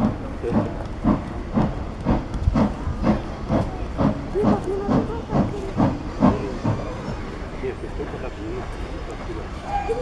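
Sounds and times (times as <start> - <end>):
hissing steam: 0.0 - 7.5
steam locomotive chuffing: 0.0 - 10.0.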